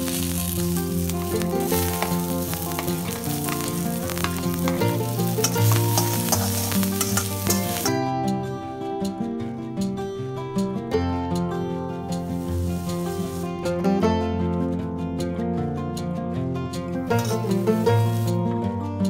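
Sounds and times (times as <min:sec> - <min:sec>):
spatula scraping pan: 0:00.0 - 0:07.9, 0:17.2 - 0:18.4
food sizzling in oil: 0:00.0 - 0:08.0, 0:12.2 - 0:13.6, 0:17.1 - 0:18.4
background music: 0:00.0 - 0:19.0.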